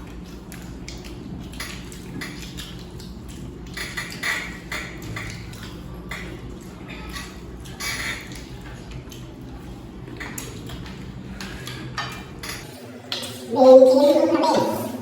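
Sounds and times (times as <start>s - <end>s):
cutlery clinking on plates: 1.0s - 2.8s, 3.6s - 8.8s, 10.1s - 13.4s
person speaking: 13.4s - 15.0s.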